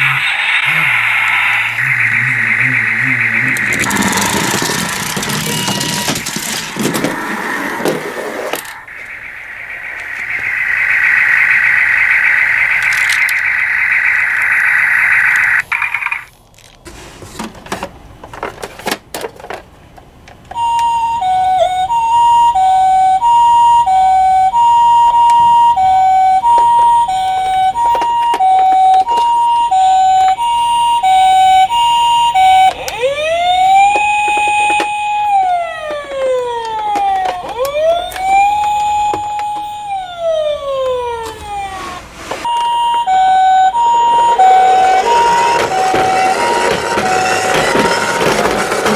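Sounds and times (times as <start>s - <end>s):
rough rolling noise: 0.0s - 13.5s, 43.7s - 48.9s
wailing siren: 0.0s - 15.6s, 20.6s - 48.9s
two-tone toy siren: 1.7s - 7.2s, 10.0s - 15.6s, 20.5s - 48.9s.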